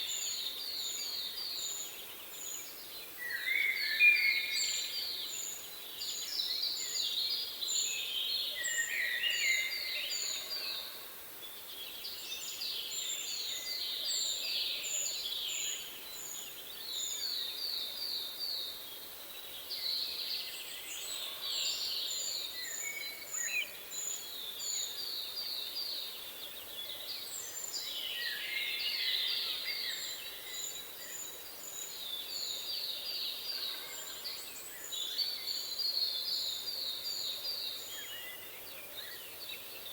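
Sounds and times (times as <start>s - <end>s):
songbirds singing trills: 11.6s - 39.9s.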